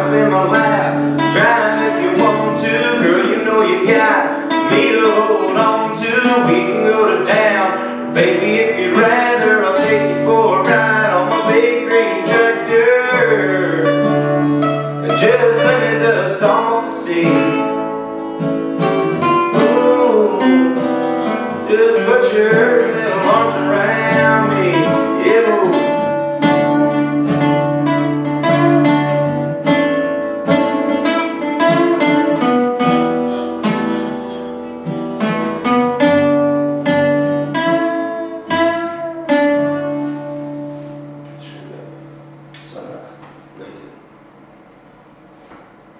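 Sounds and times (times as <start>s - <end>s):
person singing: 0.0s - 18.0s, 18.8s - 29.2s, 30.5s - 33.2s
acoustic guitar strummed and picked: 0.0s - 44.2s.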